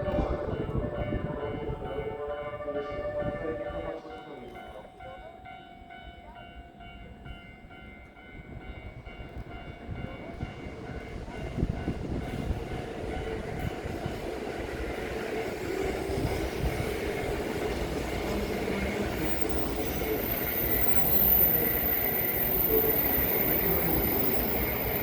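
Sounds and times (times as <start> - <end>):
electric train running: 9.9 - 25.0.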